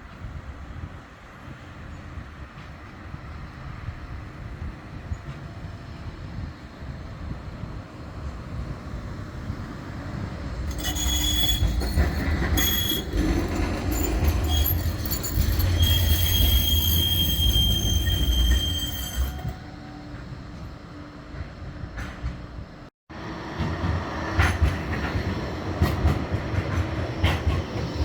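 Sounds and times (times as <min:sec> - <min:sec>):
tram running gear rumbling: 0:10.0 - 0:19.6
high wheel squeal: 0:10.7 - 0:19.7.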